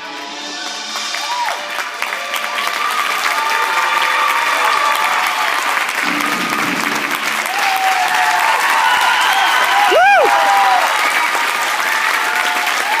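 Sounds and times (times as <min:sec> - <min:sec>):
music playing: 0:00.0 - 0:03.9
audience clapping: 0:00.6 - 0:13.0.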